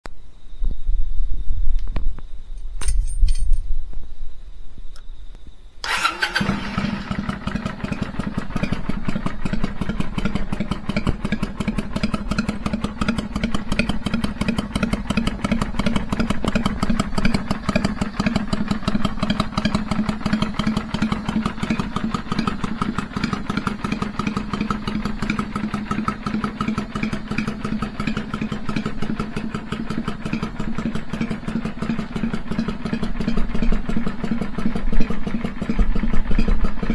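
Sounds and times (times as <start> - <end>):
motorcycle engine idling: 5.2 - 36.9
starter clicks: 5.8 - 7.0.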